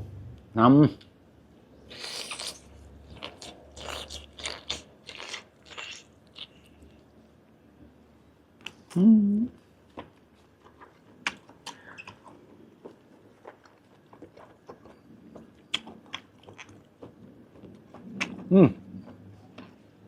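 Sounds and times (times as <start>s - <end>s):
wet mouth chewing sounds: 1.9s - 7.1s, 9.9s - 20.0s
person humming: 8.9s - 9.6s.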